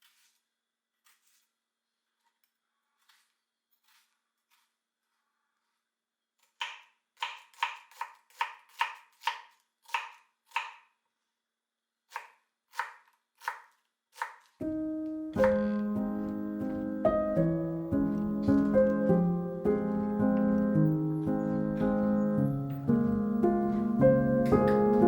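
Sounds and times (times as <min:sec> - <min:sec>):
knife chopping on cutting board: 0:06.6 - 0:10.8, 0:12.1 - 0:14.4
piano music: 0:14.6 - 0:25.0.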